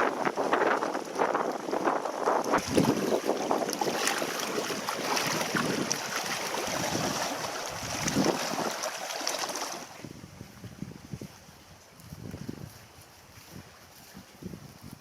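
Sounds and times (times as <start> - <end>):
water splashing against canoe: 0.0 - 10.2
wind noise on microphone: 0.0 - 15.0.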